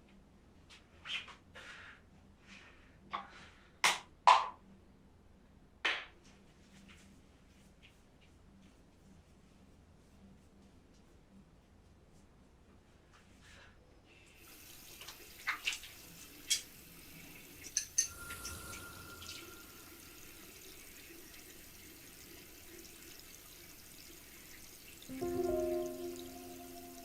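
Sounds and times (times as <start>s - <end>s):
running water: 14.4s - 27.0s.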